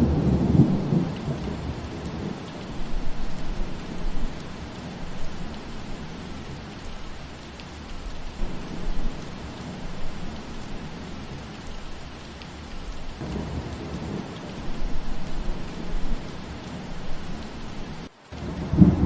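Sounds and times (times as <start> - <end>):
rolling thunder: 0.0 - 5.3, 13.2 - 19.0
steady rain falling: 0.0 - 19.0.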